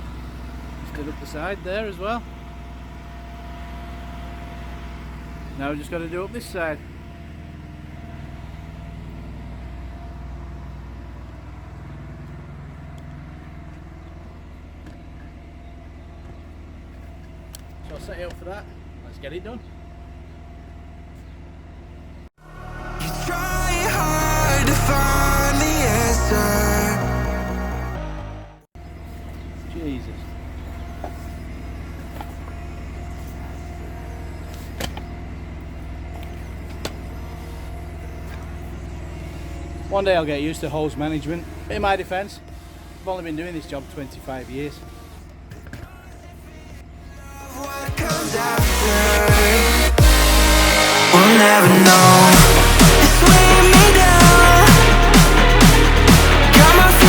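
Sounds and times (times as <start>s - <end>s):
pressure washer engine humming: 0.0s - 27.9s, 28.8s - 45.7s, 46.3s - 57.0s
pressure washer engine running: 28.8s - 44.3s, 47.8s - 57.0s.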